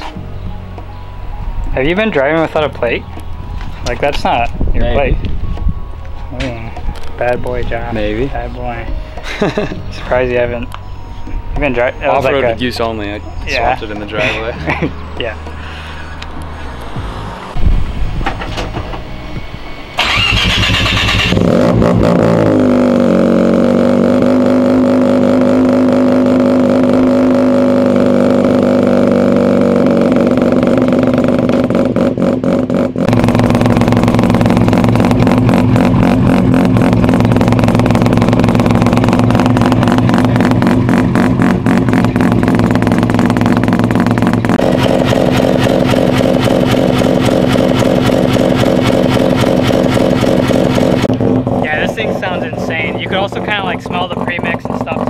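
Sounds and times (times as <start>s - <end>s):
rotary engine starting and idling: 15.6s - 23.0s, 23.9s - 55.0s.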